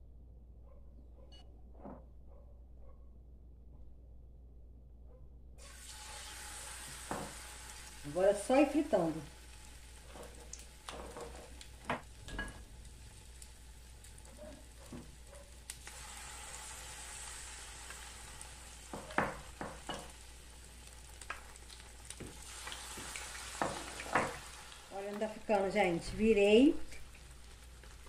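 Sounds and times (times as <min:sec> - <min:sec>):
battered leaves deep-frying: 0:05.6 - 0:28.0.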